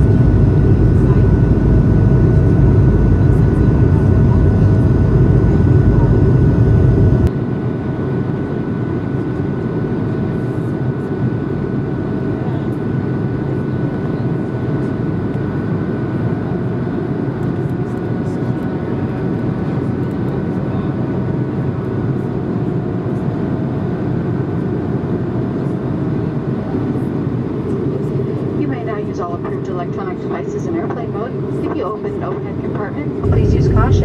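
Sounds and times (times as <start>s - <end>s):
airplane cabin engine rush: 0.0s - 34.0s
faint steady whine: 28.6s - 34.0s.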